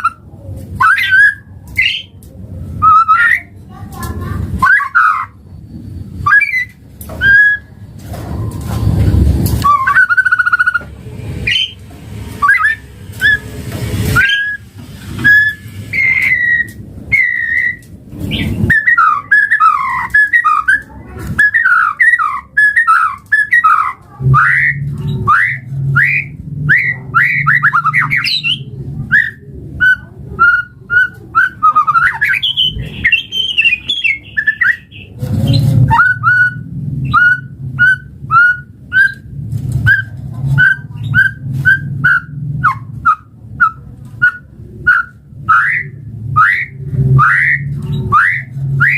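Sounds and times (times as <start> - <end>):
bird singing whistled notes: 6.2 - 7.7, 9.6 - 10.8, 11.4 - 11.8, 12.4 - 13.5, 14.2 - 39.3, 39.9 - 48.9.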